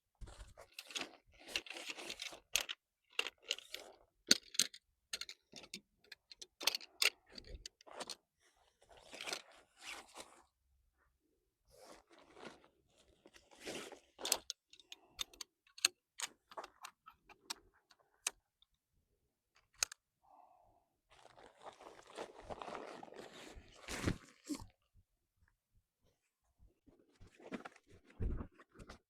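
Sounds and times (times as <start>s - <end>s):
camping gear clicks and knocks: 0.2s - 8.2s, 13.8s - 18.6s.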